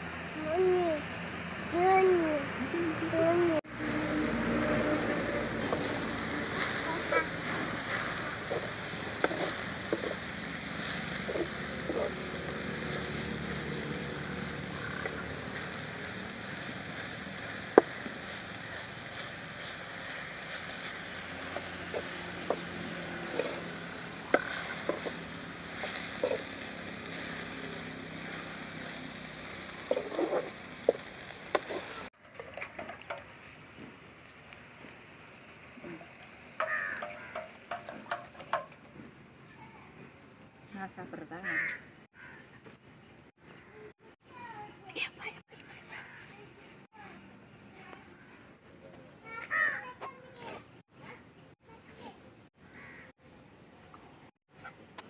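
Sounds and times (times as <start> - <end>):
leaves sizzling in a pot: 0.0 - 39.8.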